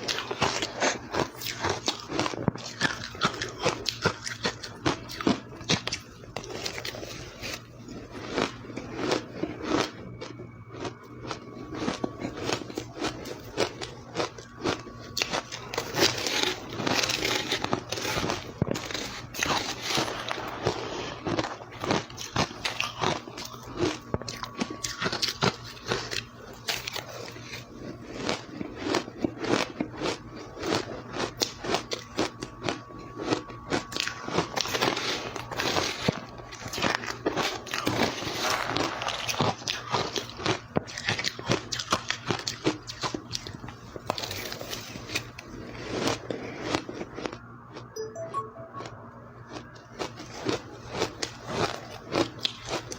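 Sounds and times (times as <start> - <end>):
ice being chewed: 0.0 - 48.9, 49.5 - 52.9
ice being crunched: 15.3 - 20.8.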